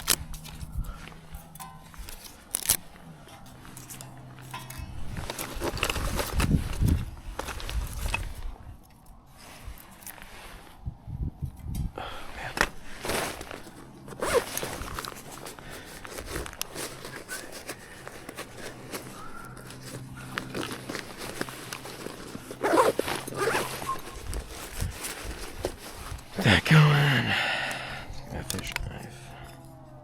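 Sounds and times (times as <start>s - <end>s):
rustling of outdoor gear: 0.0s - 30.0s
zipper pulled open and closed: 12.5s - 26.4s.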